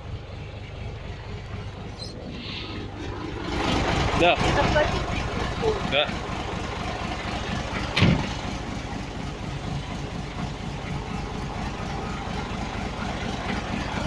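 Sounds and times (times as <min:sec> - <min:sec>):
diesel truck engine idling: 0:00.0 - 0:14.0
loud bump: 0:07.9 - 0:08.4.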